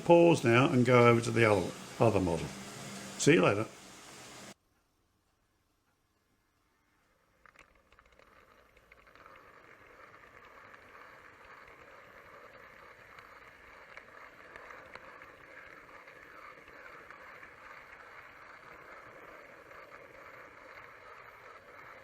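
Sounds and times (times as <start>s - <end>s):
model train rumbling on track: 0.0s - 4.6s, 8.0s - 22.0s.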